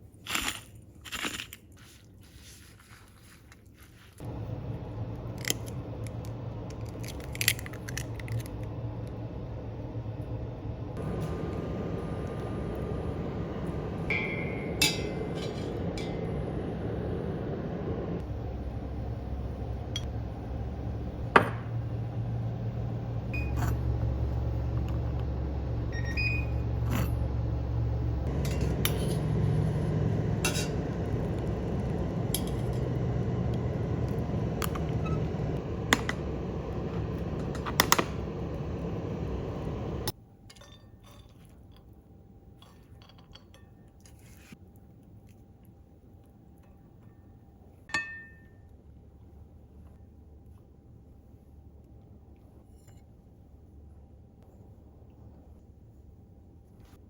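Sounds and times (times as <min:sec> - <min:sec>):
steady low rumble: 0:04.2 - 0:40.2.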